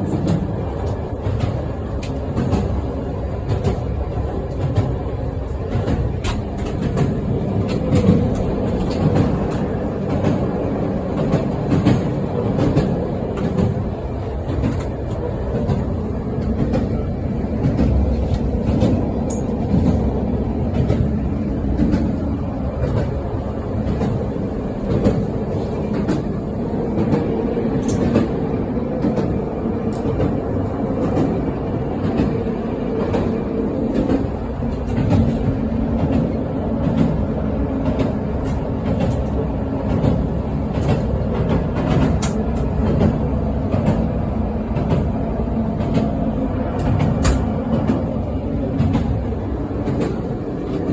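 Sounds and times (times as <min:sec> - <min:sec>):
train running rumble: 0:00.0 - 0:50.9
train wheels clicking over rails: 0:00.0 - 0:50.9.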